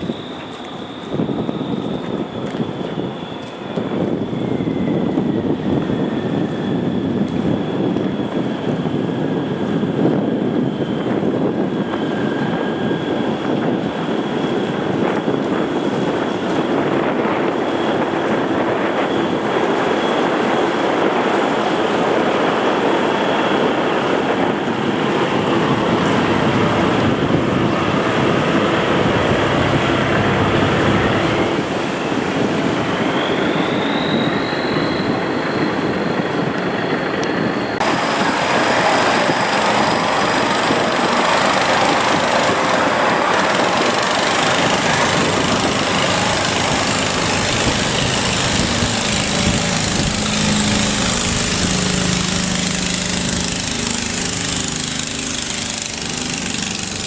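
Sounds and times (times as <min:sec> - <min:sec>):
wind noise: 0:00.0 - 0:57.0
boat engine running: 0:37.8 - 0:57.0.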